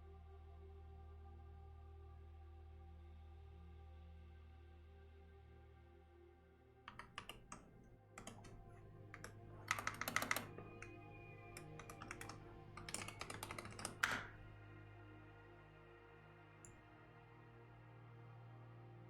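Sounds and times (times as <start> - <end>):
soft ambient music: 0.0 - 19.0
typing on computer keyboard: 6.9 - 14.5.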